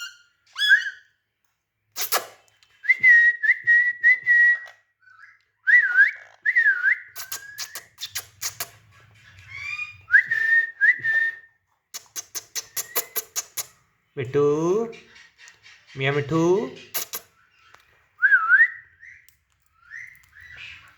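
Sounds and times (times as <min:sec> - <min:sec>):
parrot whistling: 0:00.0 - 0:01.1, 0:02.8 - 0:11.5, 0:12.2 - 0:13.8.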